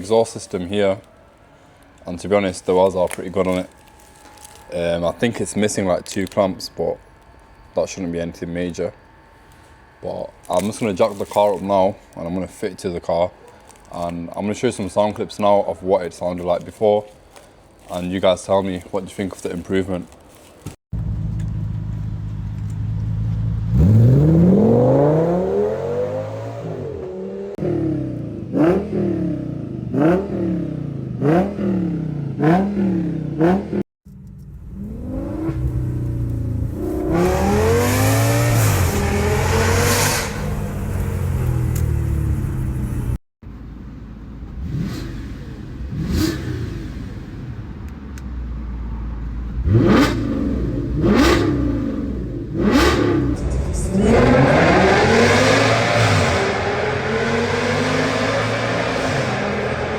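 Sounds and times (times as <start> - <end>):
car engine idling and revving: 21.0 - 59.9.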